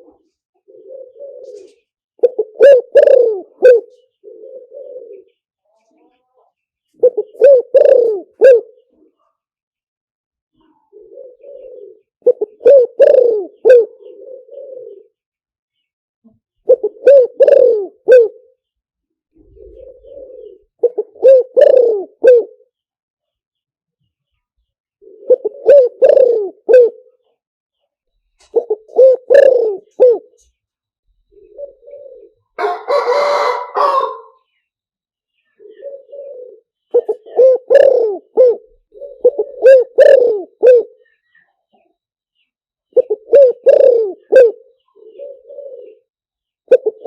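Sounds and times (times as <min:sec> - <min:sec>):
dove cooing: 0:00.0 - 0:05.4, 0:07.0 - 0:09.2, 0:10.6 - 0:15.2, 0:16.6 - 0:18.6, 0:19.4 - 0:22.8, 0:25.0 - 0:27.3, 0:28.4 - 0:30.5, 0:31.2 - 0:34.5, 0:35.5 - 0:41.9, 0:42.9 - 0:47.0.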